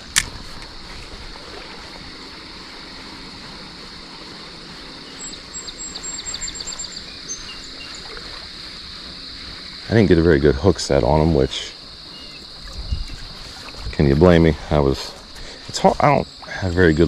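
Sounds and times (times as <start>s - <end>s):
creek water over rapids: 0.0s - 17.0s
high insect drone: 0.0s - 17.0s
high ticks or chirps: 4.6s - 17.0s.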